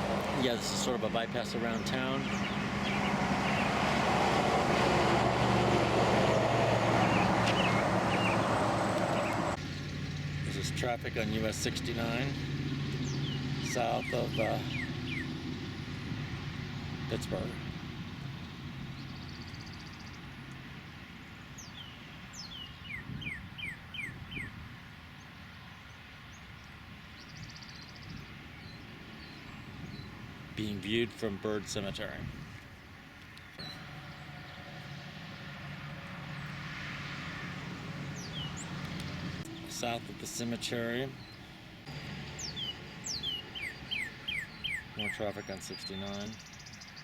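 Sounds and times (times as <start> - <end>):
low engine hum: 0.0 - 23.0, 33.4 - 45.0
highway traffic rushing: 0.0 - 47.0
songbird whistling downward notes: 42.3 - 45.2.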